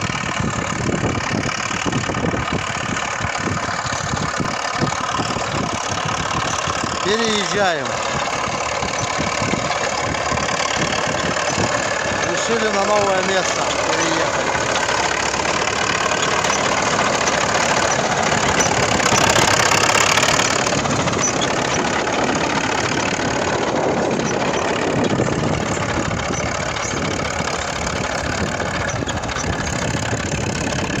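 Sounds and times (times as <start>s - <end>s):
crawler tractor diesel engine: 0.0s - 31.0s.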